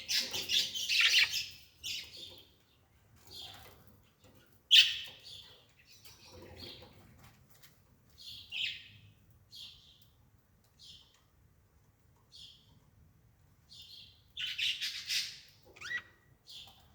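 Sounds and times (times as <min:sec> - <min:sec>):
bird chirping: 0:00.0 - 0:07.0, 0:08.1 - 0:10.1, 0:13.7 - 0:16.9.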